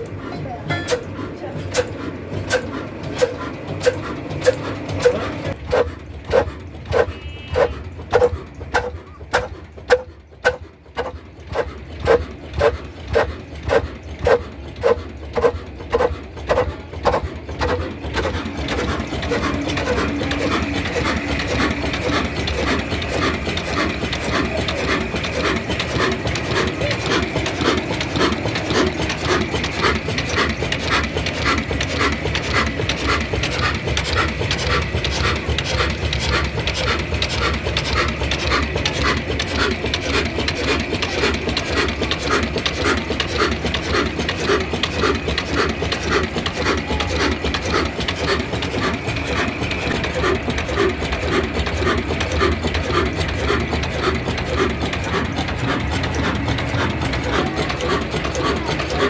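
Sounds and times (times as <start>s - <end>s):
diesel engine chuffing: 0.0s - 59.0s.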